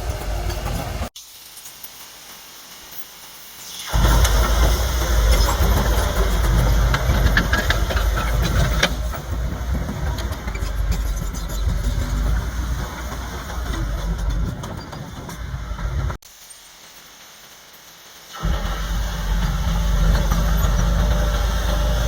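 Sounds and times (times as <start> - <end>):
bulldozer diesel engine running: 0.0 - 1.1, 3.9 - 16.2, 18.4 - 22.0
metallic clanks and knocks: 5.2 - 16.2.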